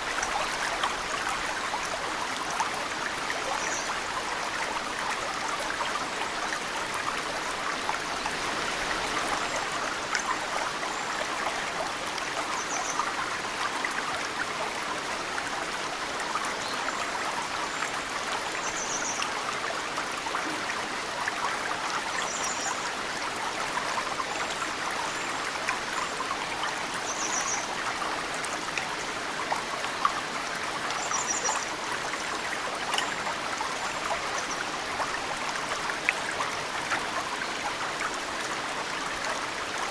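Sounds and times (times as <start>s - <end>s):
stream running: 0.0s - 39.9s
water dripping into stream: 0.0s - 39.9s.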